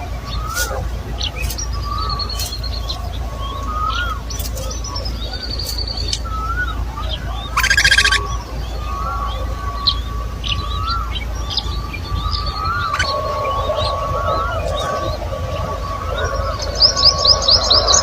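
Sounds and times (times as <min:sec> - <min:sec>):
birds chirping: 0:00.0 - 0:18.0
buzzy bird call: 0:00.0 - 0:18.0
high thin bird whistles: 0:00.3 - 0:06.8, 0:07.6 - 0:08.3.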